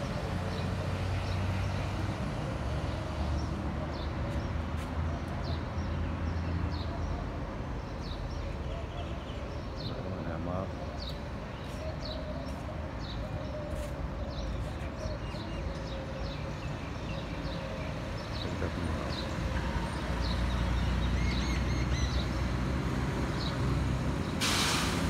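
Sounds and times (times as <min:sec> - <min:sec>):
low rumble of street traffic: 0:00.0 - 0:25.0.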